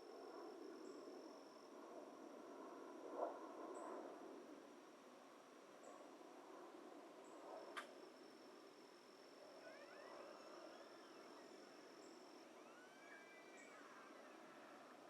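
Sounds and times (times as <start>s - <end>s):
low steady hiss: 0.0s - 15.0s
distant wildlife calls: 9.6s - 15.0s.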